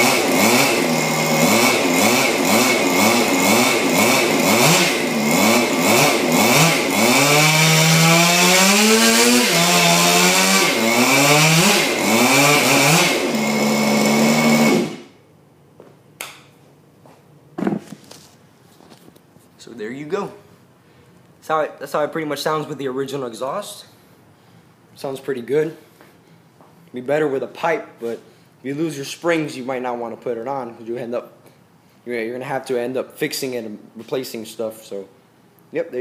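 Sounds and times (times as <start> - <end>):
small two-stroke engine revving: 0.0 - 15.1.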